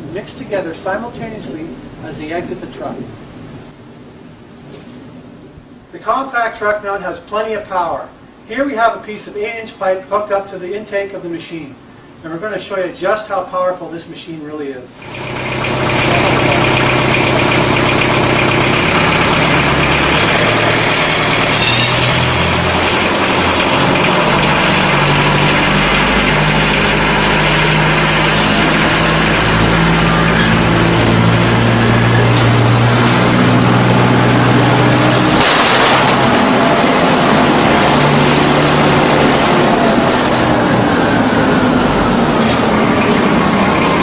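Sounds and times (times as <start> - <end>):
diesel engine running: 15.0 - 44.0.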